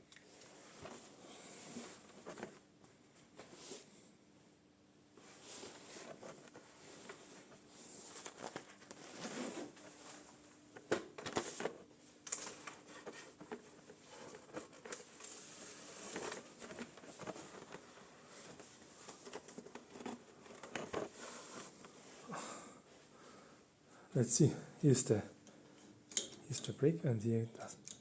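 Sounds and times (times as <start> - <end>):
rustling: 0.3 - 3.9, 5.2 - 22.3.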